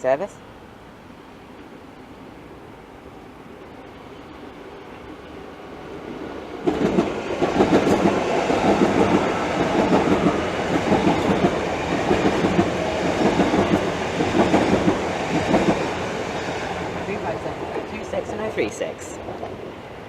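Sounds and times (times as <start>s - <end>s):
train wheels clattering over rails: 6.6s - 18.4s.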